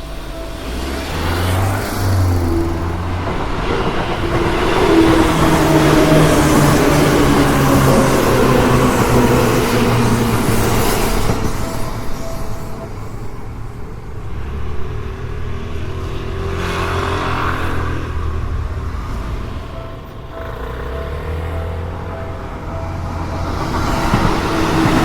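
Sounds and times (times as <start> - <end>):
vehicle passing rumble: 0.0 - 11.9
electric train rumbling: 0.0 - 25.0.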